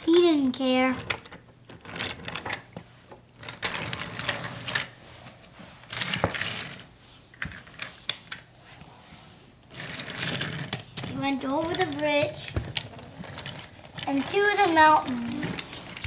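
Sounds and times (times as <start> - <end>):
toy train clattering on track: 9.8 - 16.0.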